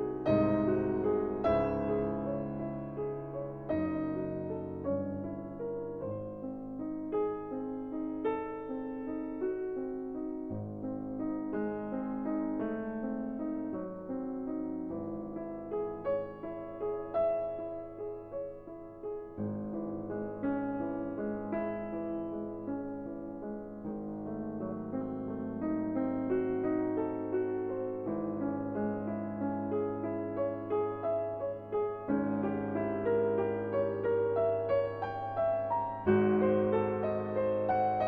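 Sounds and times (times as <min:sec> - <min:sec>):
piano music: 0:00.0 - 0:38.0.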